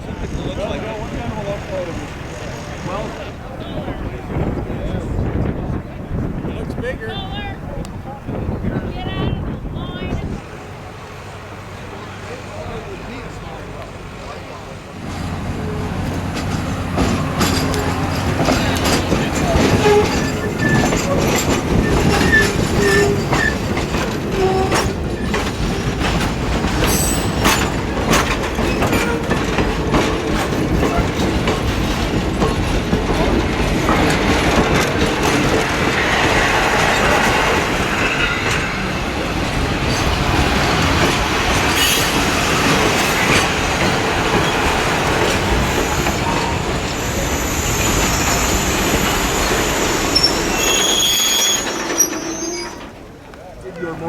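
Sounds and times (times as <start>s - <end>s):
train wheels rumbling on rail: 0.0s - 54.0s
clicks over rail joints: 15.6s - 37.5s.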